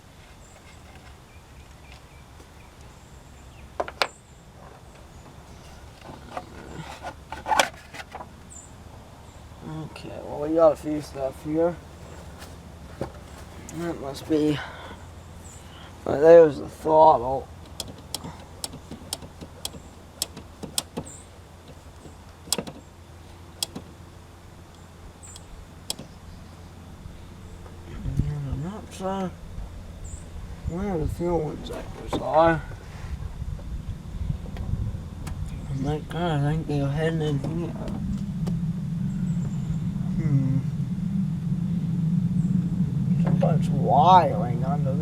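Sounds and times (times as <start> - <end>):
low steady hum: 0.0 - 45.0
engine parts clicking and knocking: 3.7 - 8.6, 10.9 - 15.4, 17.5 - 24.1, 24.7 - 26.5, 37.2 - 38.6
sharp clicks and knocks of parts: 17.6 - 22.9, 23.6 - 23.9, 25.2 - 26.2.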